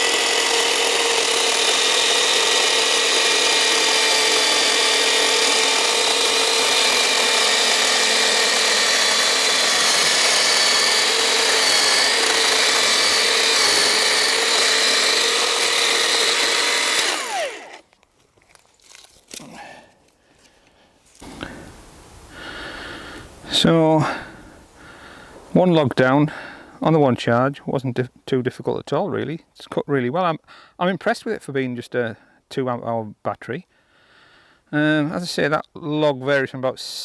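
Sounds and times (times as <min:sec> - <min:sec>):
motor winding down whine: 0:00.0 - 0:17.8
electric chainsaw cutting log: 0:00.0 - 0:18.0.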